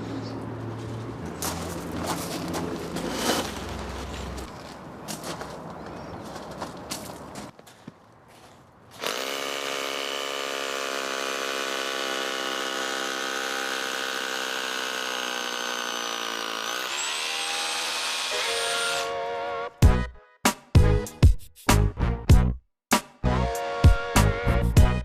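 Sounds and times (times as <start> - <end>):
rotary hammer drilling concrete: 9.0 - 19.1.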